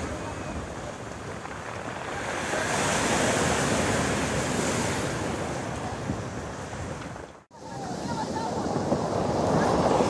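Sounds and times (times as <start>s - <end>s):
wave breaking on pebble shore: 0.0s - 5.4s
wind buffeting microphone: 0.0s - 10.0s.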